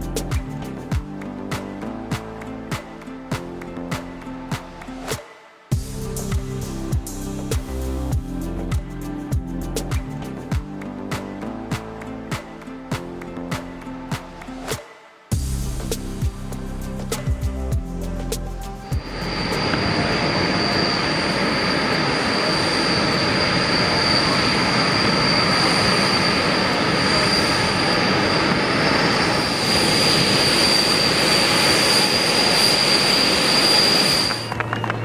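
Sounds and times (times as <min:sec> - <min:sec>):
jet engine turbine whine: 0:19.0 - 0:35.0.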